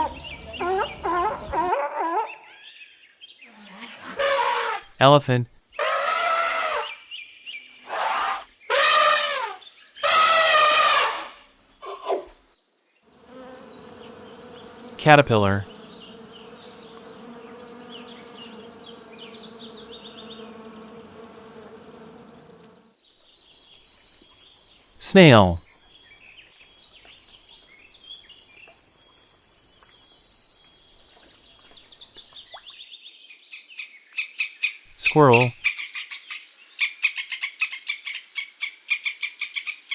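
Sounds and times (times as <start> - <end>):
insects chorus: 0.0 - 1.6, 13.2 - 31.7
elephant trumpeting: 0.0 - 2.4, 4.1 - 4.8, 5.8 - 6.9, 7.9 - 11.3
faint steady buzzing: 13.2 - 22.9.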